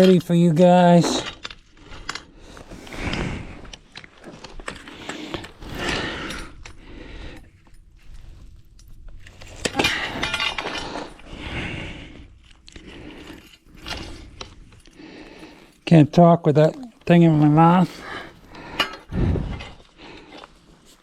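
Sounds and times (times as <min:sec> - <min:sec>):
metal clinking and scraping: 0:00.0 - 0:11.4, 0:12.0 - 0:15.8, 0:17.4 - 0:21.0.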